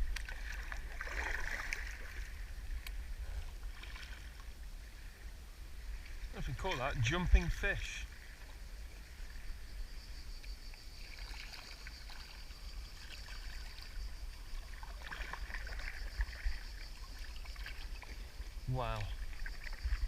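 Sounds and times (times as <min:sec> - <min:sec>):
kayak paddle strokes: 0:00.0 - 0:20.0
water dripping off paddle: 0:10.4 - 0:20.0.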